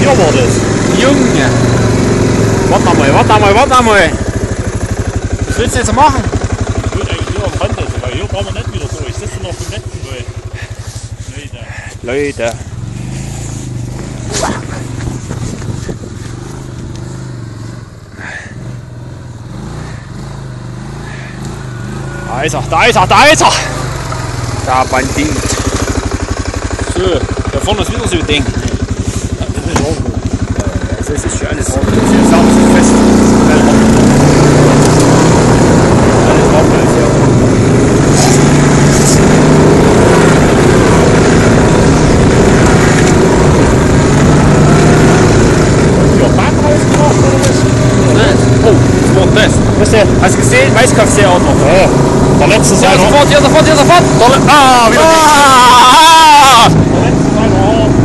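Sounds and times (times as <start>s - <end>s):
quad bike engine running: 0.0s - 58.0s.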